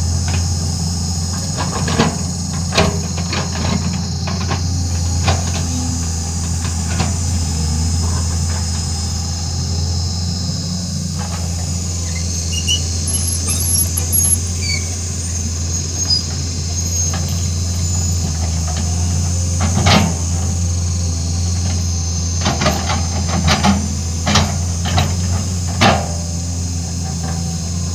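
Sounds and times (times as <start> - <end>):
excavator engine humming: 0.0 - 27.9
high squeaks: 12.0 - 18.1.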